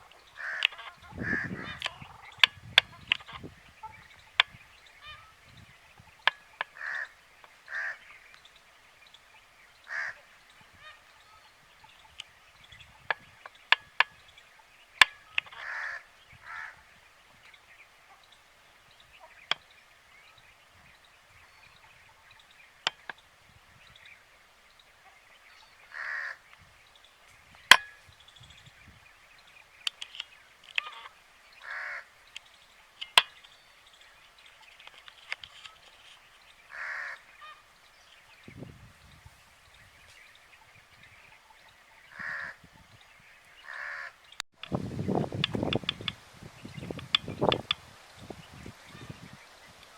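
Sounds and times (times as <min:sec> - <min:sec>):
birds calling harshly: 0:00.0 - 0:49.9
sharp clicks: 0:00.5 - 0:01.0, 0:27.7 - 0:28.0, 0:29.8 - 0:31.0, 0:32.3 - 0:33.6, 0:34.8 - 0:36.0, 0:44.6 - 0:46.2, 0:46.8 - 0:47.8.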